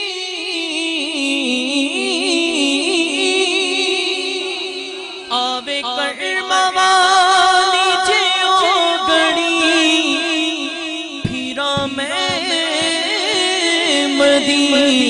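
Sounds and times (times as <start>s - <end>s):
person singing wavering melody: 5.3s - 15.0s.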